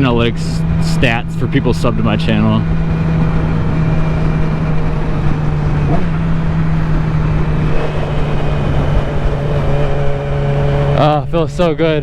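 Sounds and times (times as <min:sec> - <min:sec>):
motorcycle engine running: 0:00.0 - 0:12.0
wind rush: 0:02.8 - 0:11.0.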